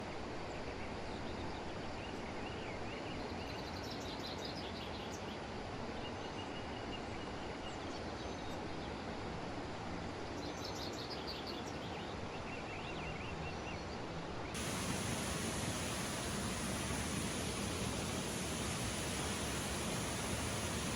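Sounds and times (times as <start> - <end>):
birds chirping: 14.6 - 20.9
waterfall rushing: 14.6 - 20.9.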